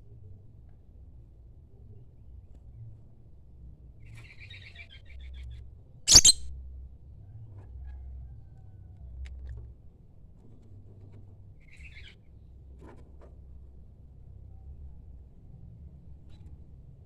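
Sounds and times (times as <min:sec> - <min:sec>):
bird twittering chirps: 0:06.1 - 0:06.4
shrill bird call: 0:06.1 - 0:06.4.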